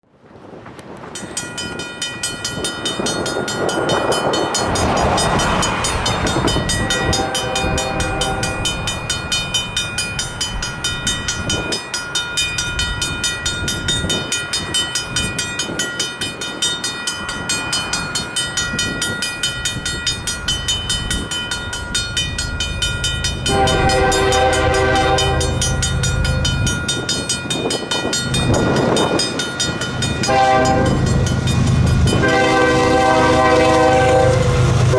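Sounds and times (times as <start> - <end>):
train rumble: 0.2 - 34.9
railroad crossing bell ringing: 1.1 - 34.9
train horn blast: 4.6 - 9.0, 23.4 - 26.4, 30.2 - 31.3, 32.0 - 34.9.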